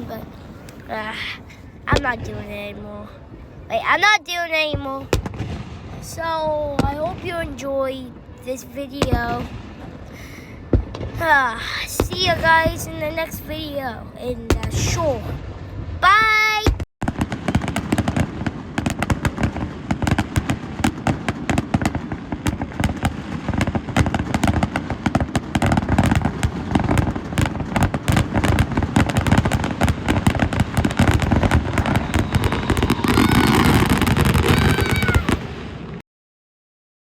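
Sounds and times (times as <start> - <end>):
fireworks bangs and crackles: 0.0 - 36.0.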